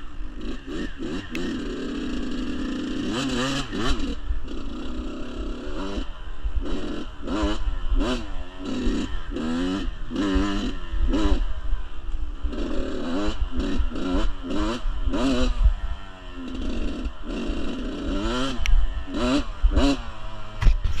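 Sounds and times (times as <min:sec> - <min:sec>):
dirt bike engine revving: 0:00.0 - 0:21.0
wind rumbling on microphone: 0:20.5 - 0:21.0.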